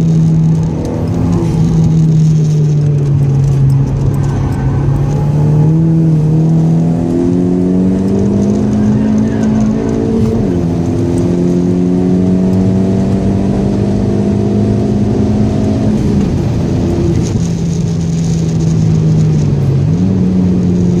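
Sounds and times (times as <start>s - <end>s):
car engine at full throttle: 0.0s - 21.0s.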